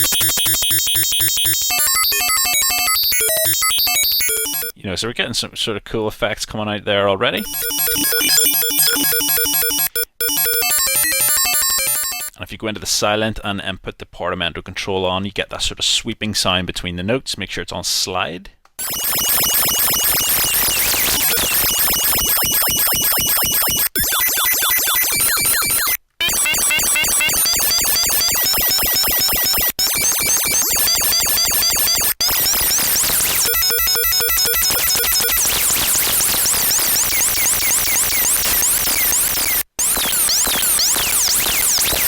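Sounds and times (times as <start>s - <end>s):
stepped bleeping tones: 0.0s - 4.7s, 7.4s - 12.4s, 18.8s - 42.0s
warbling synth arpeggio: 0.0s - 4.7s, 7.4s - 12.3s, 18.8s - 36.6s.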